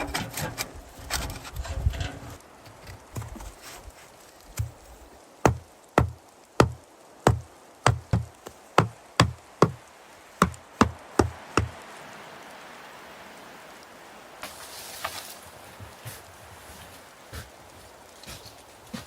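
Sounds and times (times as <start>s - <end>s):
faint steady hiss: 0.0s - 19.0s
sharp knocks: 5.4s - 9.8s, 10.4s - 11.8s.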